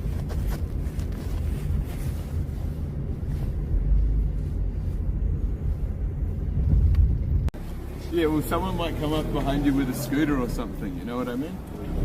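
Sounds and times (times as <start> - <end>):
street traffic: 0.0 - 12.0
wind buffeting microphone: 3.6 - 7.6.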